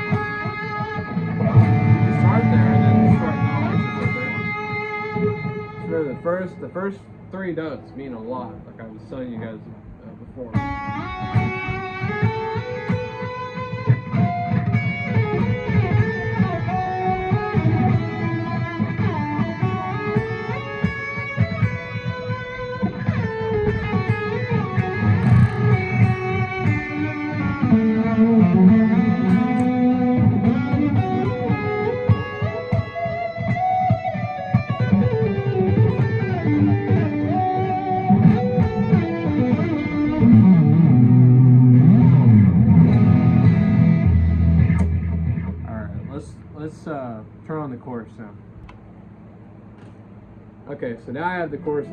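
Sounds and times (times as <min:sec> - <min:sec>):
electric guitar melody: 0:00.0 - 0:46.6, 0:51.4 - 0:51.9
low accompaniment: 0:00.0 - 0:47.4.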